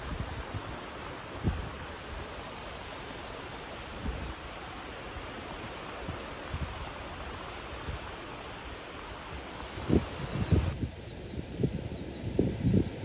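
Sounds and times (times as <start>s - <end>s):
ocean surf on a beach: 0.0s - 13.0s
wind bumps on microphone: 1.4s - 1.9s, 9.7s - 13.0s.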